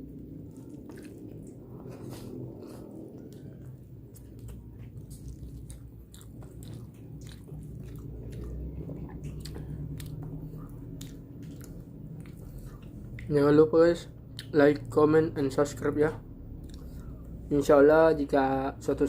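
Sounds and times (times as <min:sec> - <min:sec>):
close chewing and biting: 0:00.0 - 0:13.6, 0:16.5 - 0:17.4
low hum: 0:00.0 - 0:19.0
wet mouth clicks: 0:05.2 - 0:13.3.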